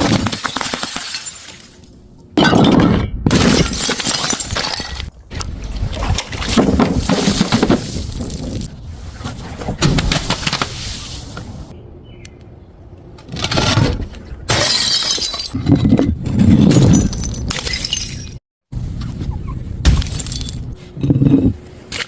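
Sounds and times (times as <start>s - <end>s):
glass bottles smashing: 0.0s - 1.8s, 3.3s - 5.1s, 14.5s - 15.6s, 16.6s - 18.4s, 19.9s - 20.6s.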